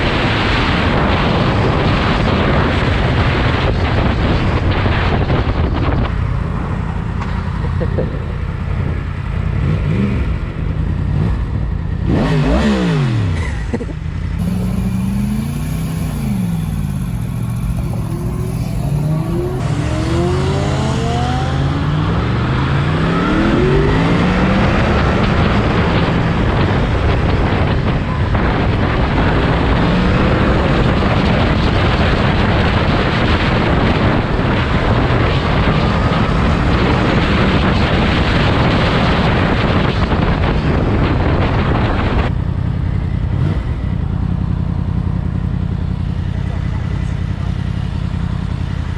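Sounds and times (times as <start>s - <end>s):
motorcycle engine revving: 9.0s - 39.8s.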